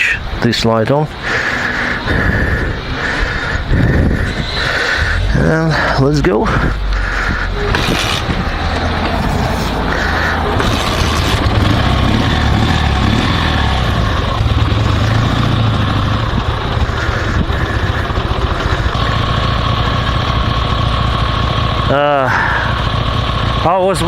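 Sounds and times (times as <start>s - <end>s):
motorcycle engine running: 1.1s - 24.0s.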